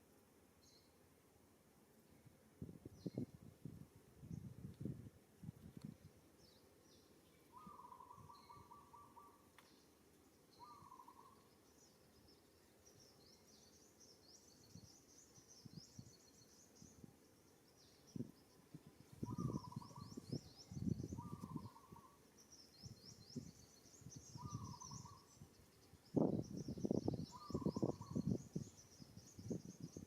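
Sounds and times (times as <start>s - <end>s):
faint outdoor ambience: 0.0s - 30.0s
bird trilled call: 7.5s - 9.5s, 10.6s - 11.4s, 19.2s - 22.2s, 24.2s - 25.4s, 27.2s - 28.4s.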